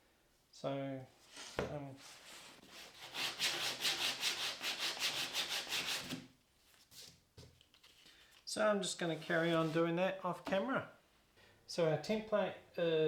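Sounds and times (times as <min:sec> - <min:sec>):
hand sanding wood edge: 0:02.7 - 0:06.2.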